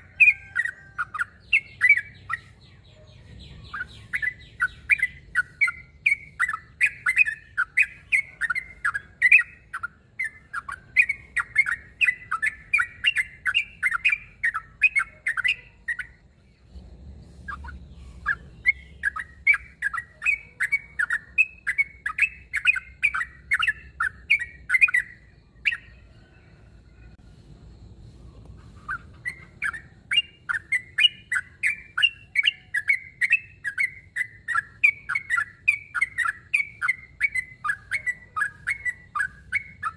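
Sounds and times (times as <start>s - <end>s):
bird singing bubbly notes: 3.4s - 26.4s.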